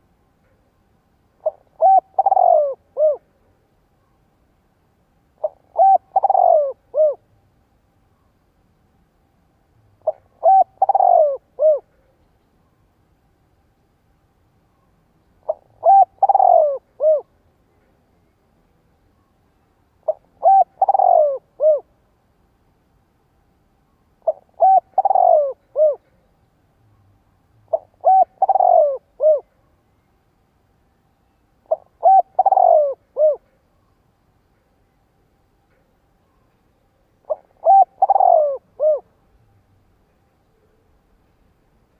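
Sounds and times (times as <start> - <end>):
dove cooing: 1.4 - 3.4, 5.4 - 7.3, 10.0 - 12.1, 15.4 - 17.3, 20.0 - 21.9, 24.2 - 26.2, 27.7 - 29.5, 31.6 - 33.6, 37.2 - 39.2.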